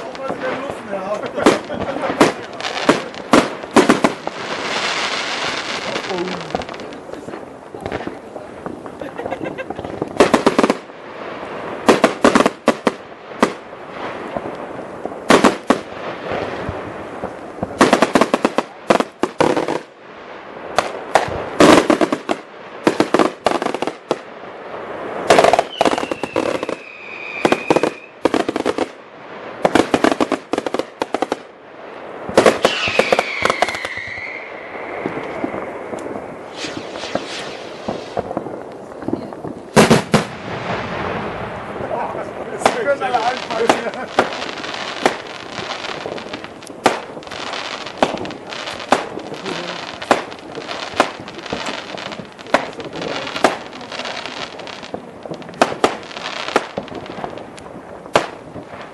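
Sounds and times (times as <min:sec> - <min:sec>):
firecracker bangs and crackling: 0:00.0 - 0:58.9
whistling firework: 0:25.2 - 0:28.5, 0:32.3 - 0:41.6.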